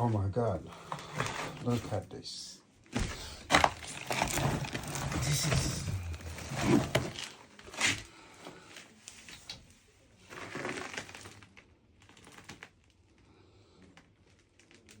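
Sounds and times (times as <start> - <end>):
rustling: 3.0 - 8.1.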